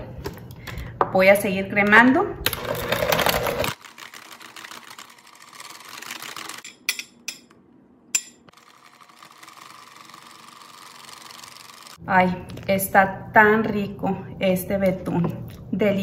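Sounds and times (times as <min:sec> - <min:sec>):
electric hand mixer running: 0:02.5 - 0:06.6, 0:08.5 - 0:12.0.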